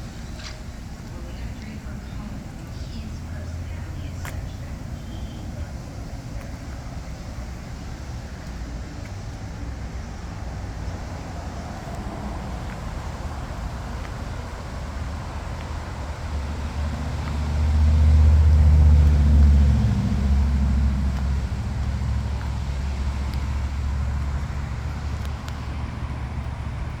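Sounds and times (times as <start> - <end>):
car driving by: 9.1 - 27.0.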